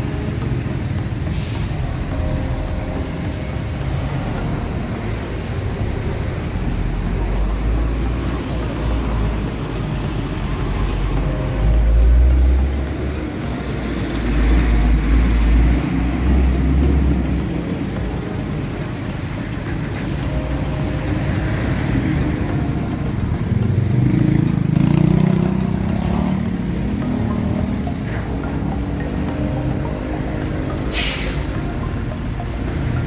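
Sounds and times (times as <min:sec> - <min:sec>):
road traffic: 0:00.0 - 0:33.0
motorcycle engine running: 0:02.0 - 0:30.7.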